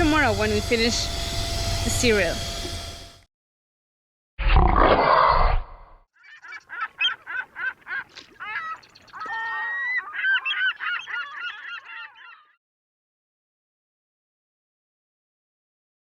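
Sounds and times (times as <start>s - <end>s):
bird honking: 6.2s - 12.6s.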